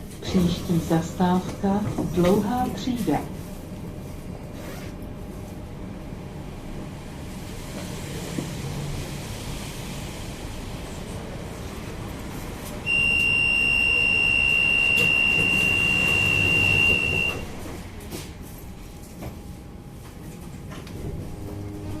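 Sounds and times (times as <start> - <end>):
low hum of tram: 0.0 - 22.0
high-pitched warning beep: 12.9 - 17.4.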